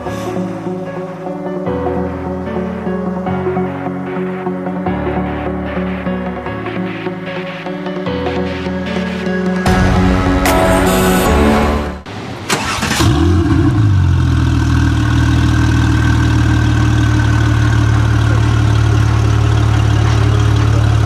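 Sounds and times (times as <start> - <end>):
background music: 0.0 - 13.4
car engine starting and idling: 9.7 - 21.0.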